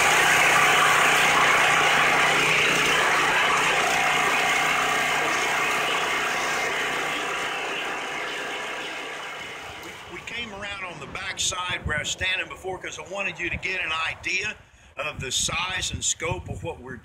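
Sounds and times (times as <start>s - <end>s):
small gas engine running: 0.0s - 11.1s.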